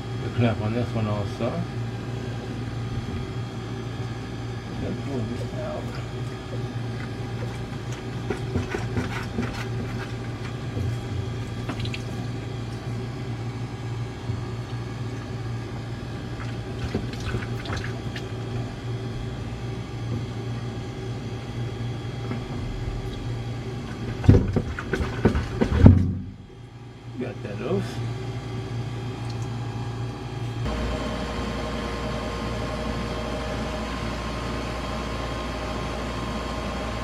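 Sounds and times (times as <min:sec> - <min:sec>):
ice machine humming: 0:00.0 - 0:37.0
running water: 0:04.9 - 0:13.0.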